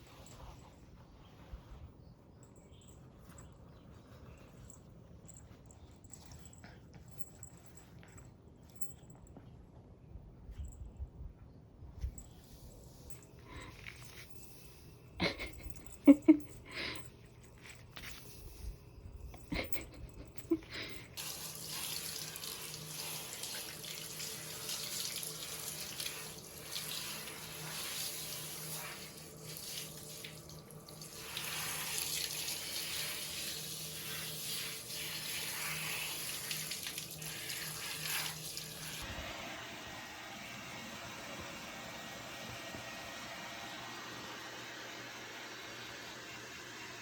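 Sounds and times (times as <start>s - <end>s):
water running from a tap: 21.2s - 39.1s.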